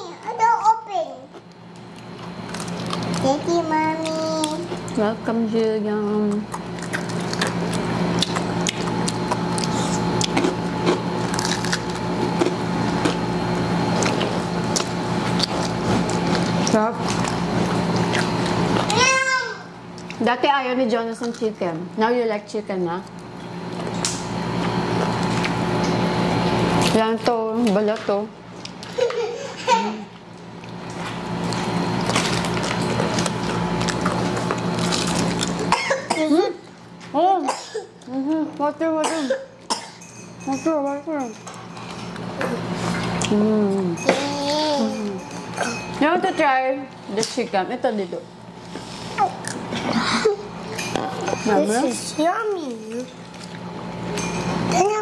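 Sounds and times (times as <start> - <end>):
steady low hum: 0.0 - 55.0
chewing smacks and clicks: 6.5 - 10.6, 14.0 - 18.9
crunching fried chicken skin: 11.2 - 13.2, 31.5 - 35.7.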